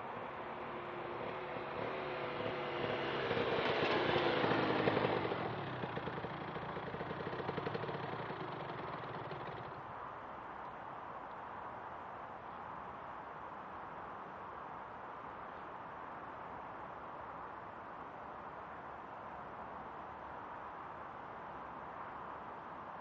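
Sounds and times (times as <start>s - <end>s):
two-stroke motorcycle passing: 0.0s - 10.0s.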